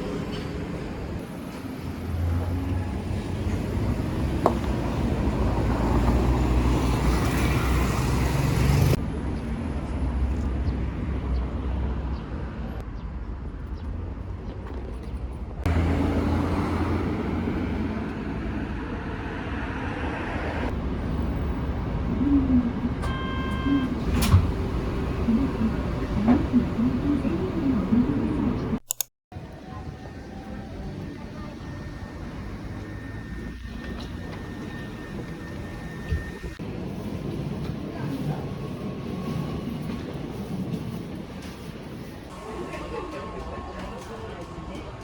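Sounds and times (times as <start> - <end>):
vehicle and street rumble: 0.0 - 45.0
faint voices: 22.1 - 23.1, 25.0 - 28.8, 42.3 - 45.0.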